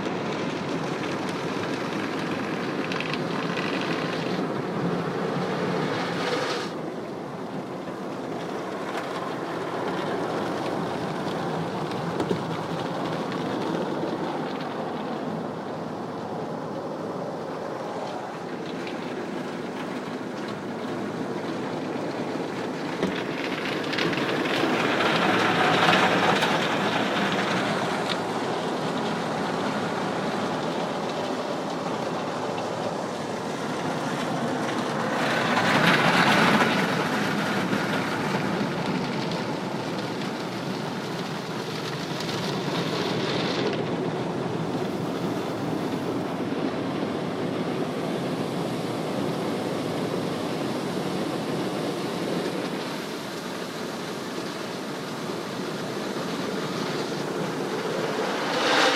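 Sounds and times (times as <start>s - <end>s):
car wash spraying: 48.4s - 58.9s.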